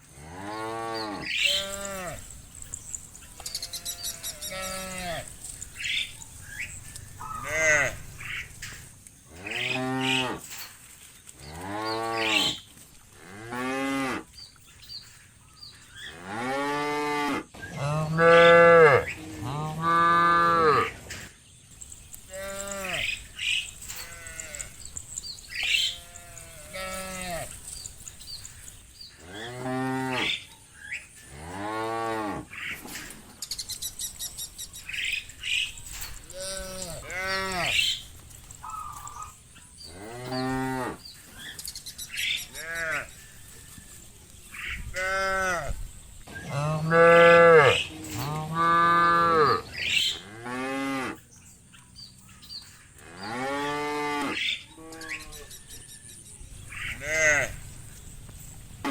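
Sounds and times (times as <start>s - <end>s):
cattle mooing: 3.6s - 5.3s, 7.2s - 8.8s, 9.4s - 10.5s, 16.1s - 20.9s, 22.3s - 24.9s, 25.6s - 27.6s, 46.5s - 51.2s, 56.9s - 57.6s.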